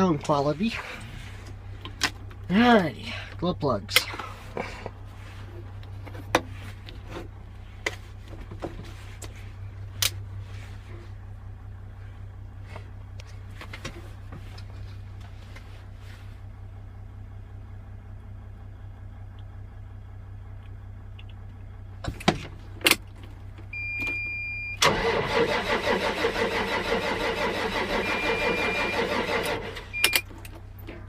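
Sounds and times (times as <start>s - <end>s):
diesel engine cranking on starter: 21.4s - 31.0s.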